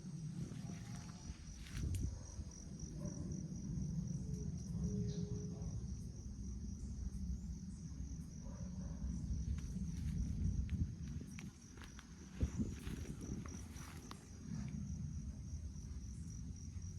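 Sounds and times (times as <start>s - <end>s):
insect chirping: 0.0s - 16.9s
low rumble: 9.1s - 16.9s.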